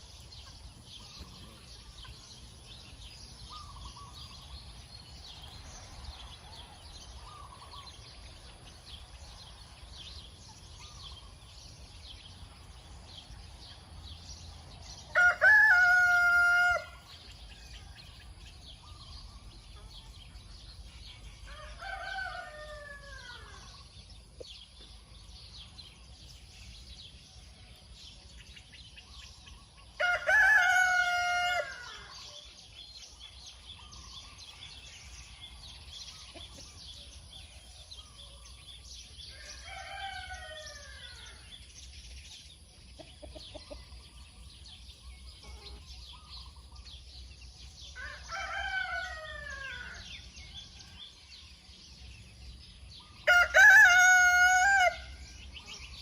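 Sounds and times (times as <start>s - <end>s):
small birds chirping: 0.0s - 56.0s
roosters crowing: 15.1s - 17.2s, 21.4s - 23.8s, 30.0s - 32.3s, 39.3s - 41.5s, 47.8s - 50.9s, 53.0s - 55.8s.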